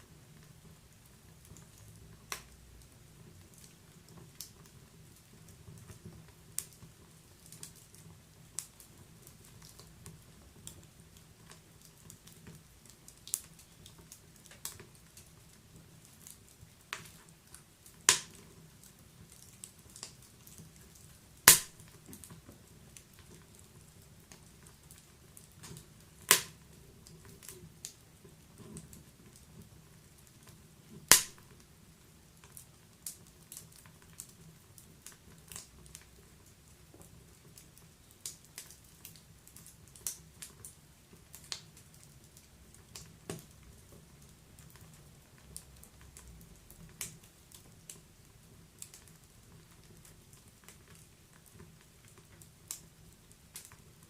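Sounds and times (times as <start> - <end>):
wood fire crackling: 0.0 - 54.0
loud sharp fire pops: 18.1 - 18.4, 21.4 - 22.0, 26.3 - 26.6, 31.0 - 31.5.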